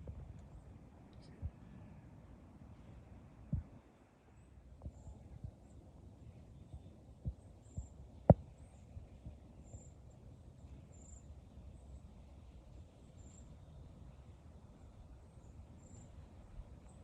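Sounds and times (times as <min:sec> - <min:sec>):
wind rumbling on microphone: 0:00.0 - 0:01.9, 0:03.4 - 0:03.9.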